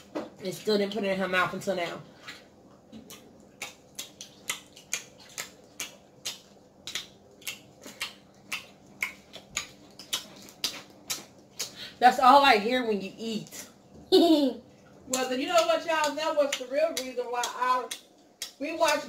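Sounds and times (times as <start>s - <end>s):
mouth smacking while chewing: 2.8s - 11.9s.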